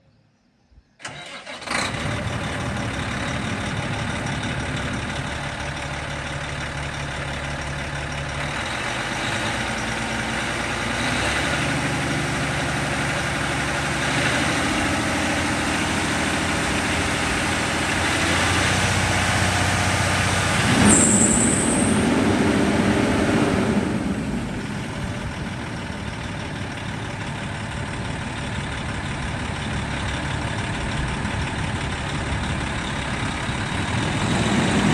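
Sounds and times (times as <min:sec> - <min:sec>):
diesel truck engine starting and running: 0:01.0 - 0:34.9.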